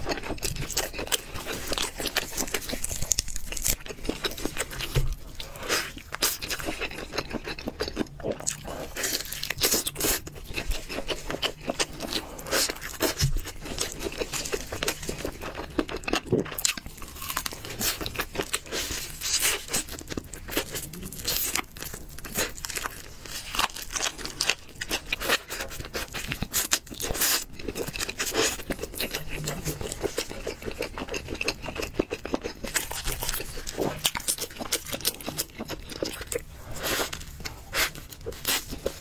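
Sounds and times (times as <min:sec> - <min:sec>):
chewing: 0:00.0 - 0:39.0
crunching and tearing meat: 0:00.0 - 0:39.0.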